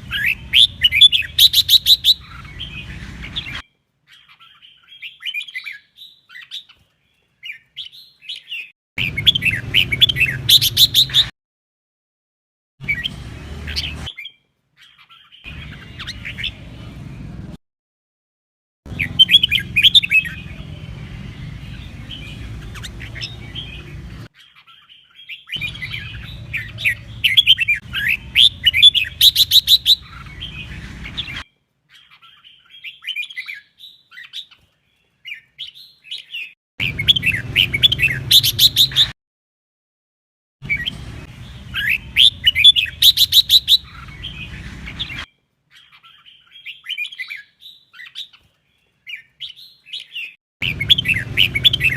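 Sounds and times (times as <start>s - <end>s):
bulbul whistled song: 0.0s - 6.6s, 7.5s - 11.3s, 12.8s - 14.4s, 18.9s - 20.7s, 25.4s - 31.4s, 35.6s - 39.2s, 40.6s - 45.3s, 49.2s - 51.9s.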